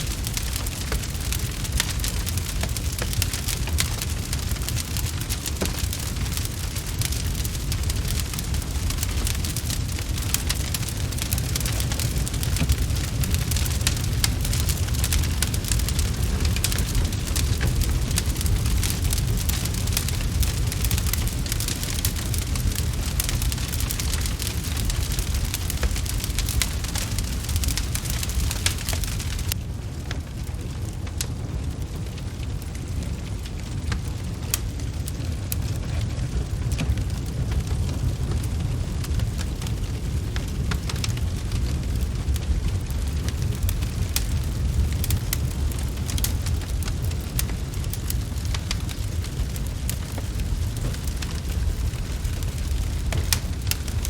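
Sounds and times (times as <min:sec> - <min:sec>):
low rumble: 0:00.0 - 0:54.0
wood fire crackling and popping: 0:00.0 - 0:54.0.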